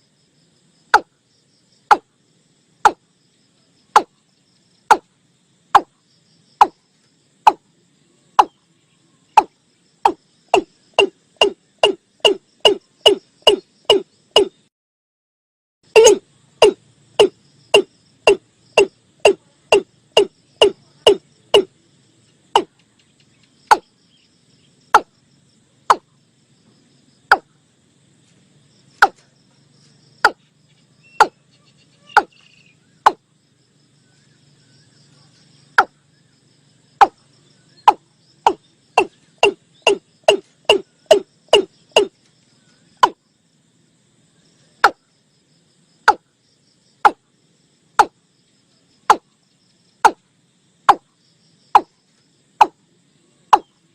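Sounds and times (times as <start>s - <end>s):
faint insects trilling: 0.0s - 14.7s, 15.8s - 53.9s
bird calling short knocking notes: 9.4s - 14.6s, 16.0s - 21.7s, 31.2s - 31.4s, 37.9s - 42.1s.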